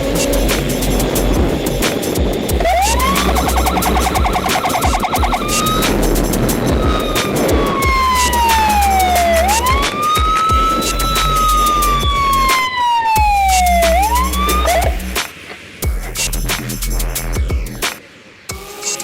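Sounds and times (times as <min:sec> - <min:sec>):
electronic music with heavy bass: 0:00.0 - 0:19.0
siren wailing: 0:02.6 - 0:15.1.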